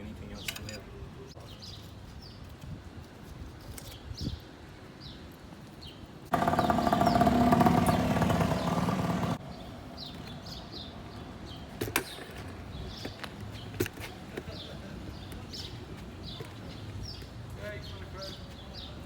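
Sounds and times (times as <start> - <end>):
birds chirping: 3.9 - 19.0
loud mechanical running noise: 6.3 - 9.4.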